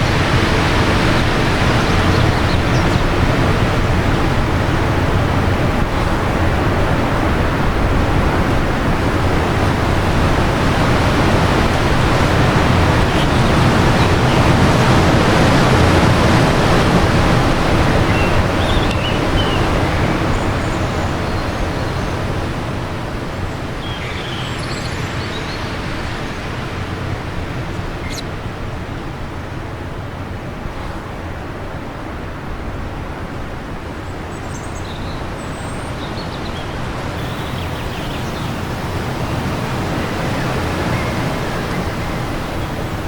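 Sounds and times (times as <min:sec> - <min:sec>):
wind gusting: 0:00.0 - 0:21.3, 0:36.9 - 0:43.0
faint bird chirps: 0:37.2 - 0:43.0.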